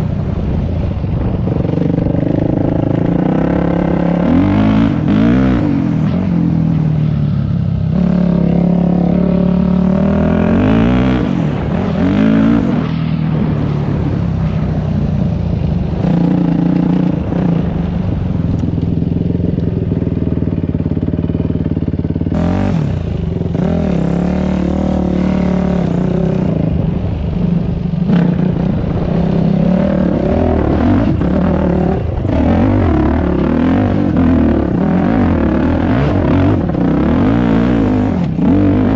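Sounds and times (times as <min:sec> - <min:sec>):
dirt bike engine revving: 0:01.5 - 0:07.2, 0:07.8 - 0:13.7, 0:19.2 - 0:27.0, 0:27.7 - 0:38.9.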